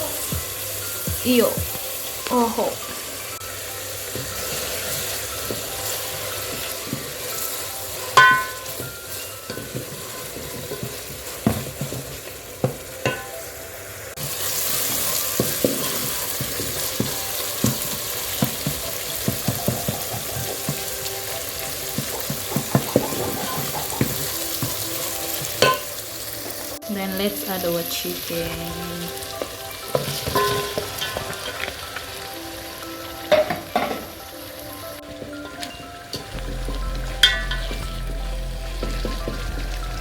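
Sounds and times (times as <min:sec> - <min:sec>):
vegetables sizzling in oil: 0:00.0 - 0:40.0
spoon stirring and knocking pan: 0:04.1 - 0:13.4, 0:14.8 - 0:26.6, 0:29.3 - 0:31.8.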